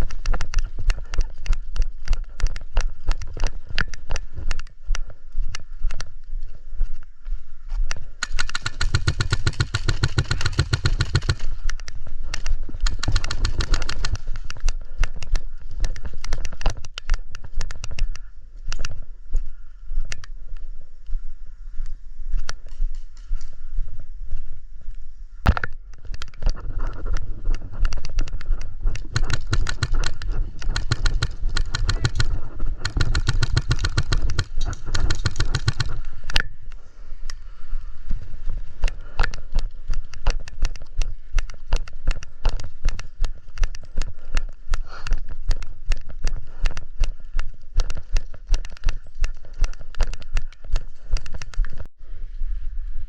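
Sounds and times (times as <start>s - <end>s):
gear rattling: 8.2s - 15.3s, 26.1s - 36.2s.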